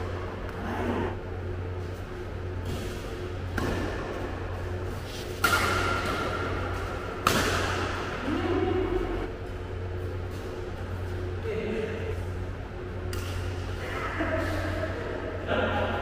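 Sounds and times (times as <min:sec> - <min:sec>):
rackets hitting a shuttlecock: 0:02.6 - 0:04.3, 0:05.3 - 0:08.2.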